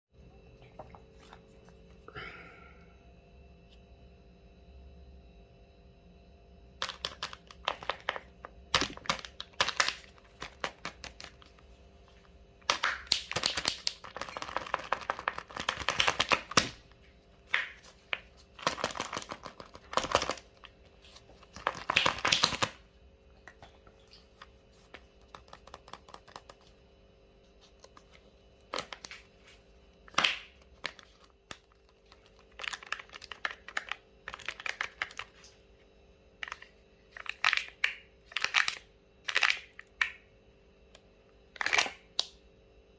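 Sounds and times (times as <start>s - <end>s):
wrappers crinkling and tearing: 30.8s - 35.4s.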